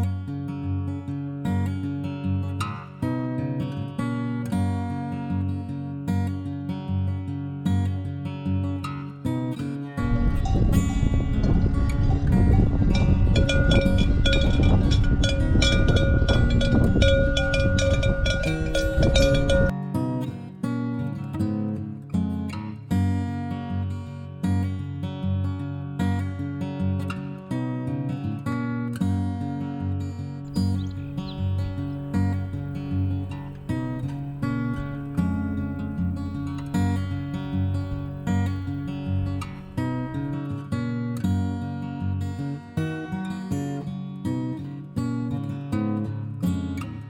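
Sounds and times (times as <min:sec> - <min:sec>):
music: 0:00.0 - 0:47.0
strummed acoustic guitar chords: 0:00.0 - 0:47.0
metallic bells clanking: 0:10.0 - 0:19.7, 0:30.5 - 0:40.1.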